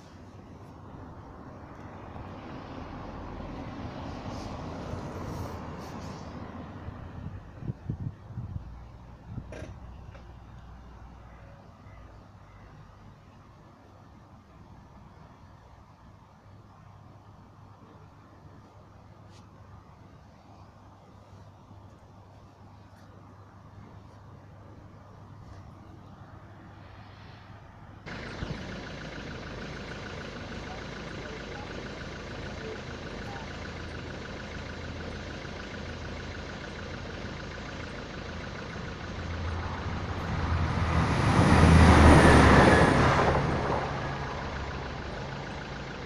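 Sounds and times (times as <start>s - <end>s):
diesel train passing: 0.0s - 7.6s, 25.7s - 46.0s.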